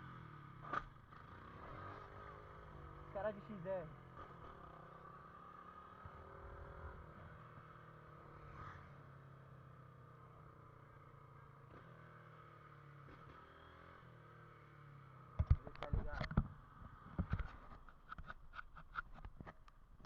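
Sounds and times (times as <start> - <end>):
faint motorcycle engine running: 0.0 - 20.0.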